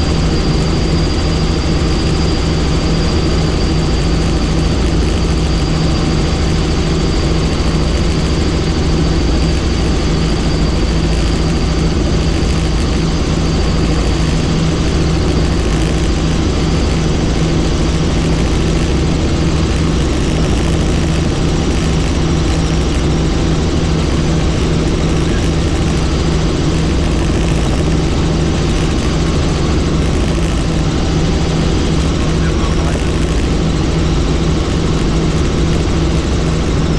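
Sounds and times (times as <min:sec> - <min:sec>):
helicopter rotor and turbine: 0:00.0 - 0:36.9
thin high whine: 0:00.0 - 0:36.9.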